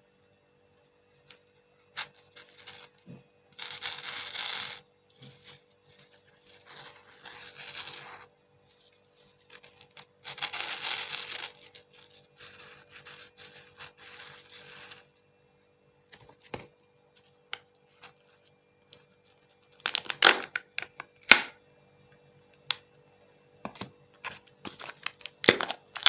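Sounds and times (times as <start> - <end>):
candy wrappers crinkling: 9.2 - 15.1, 17.2 - 21.4, 24.2 - 26.0.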